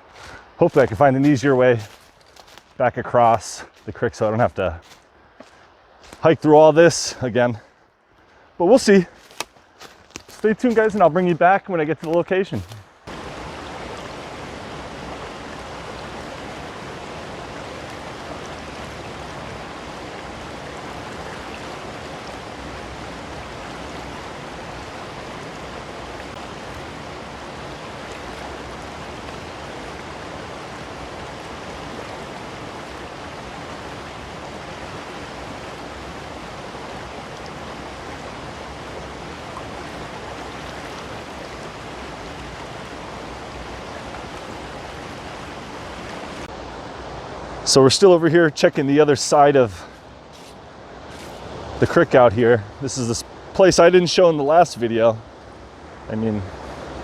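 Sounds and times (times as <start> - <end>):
waterfall and creek rushing: 0.0 - 57.0.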